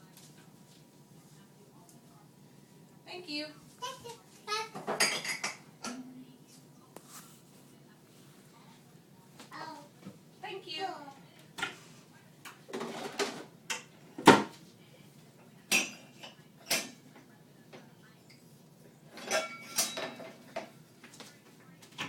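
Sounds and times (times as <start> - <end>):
dishes and cutlery clinking: 4.7 - 6.0, 11.6 - 14.6, 15.6 - 17.3, 19.1 - 21.3.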